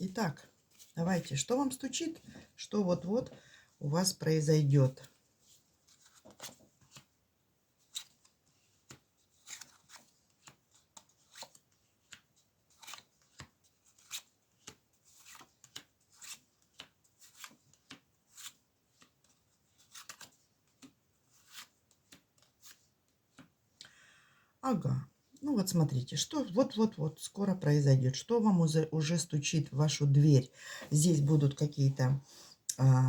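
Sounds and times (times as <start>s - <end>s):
cards being shuffled: 5.0s - 7.1s, 7.8s - 23.6s.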